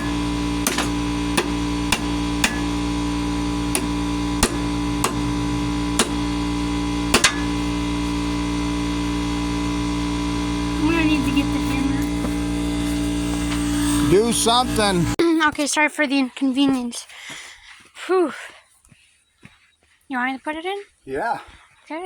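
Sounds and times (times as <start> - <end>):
steady electrical hum: 0.0 - 15.2.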